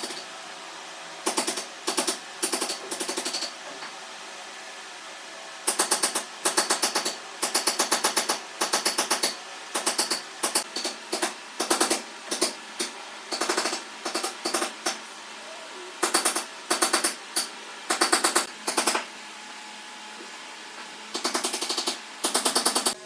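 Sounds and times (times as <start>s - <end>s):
rapid mechanical hammering: 0.0s - 0.3s, 1.2s - 3.6s, 5.6s - 15.1s, 16.0s - 19.2s, 21.1s - 23.0s.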